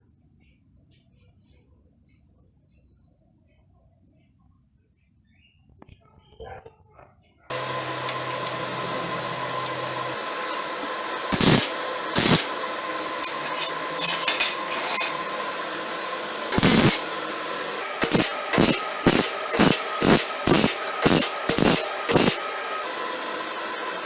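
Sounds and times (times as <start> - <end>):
welder humming: 7.5 - 24.0
welding arc bursts: 7.5 - 24.0.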